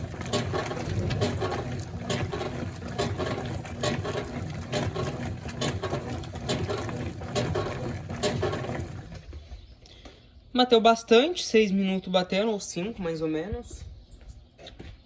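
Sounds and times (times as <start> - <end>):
water sloshing: 0.0 - 9.5
washing machine agitating: 0.0 - 9.6.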